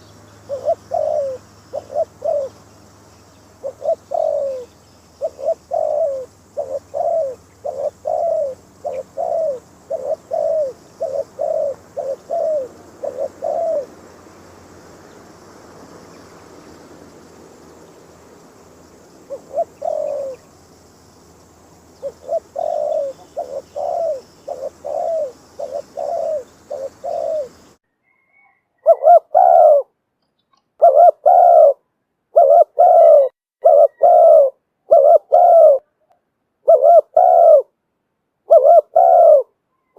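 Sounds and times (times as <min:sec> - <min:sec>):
dove cooing: 0:00.0 - 0:02.7, 0:03.6 - 0:15.5, 0:19.0 - 0:20.6, 0:21.9 - 0:27.8, 0:28.8 - 0:29.9, 0:30.8 - 0:36.0, 0:36.6 - 0:37.8, 0:38.5 - 0:39.9.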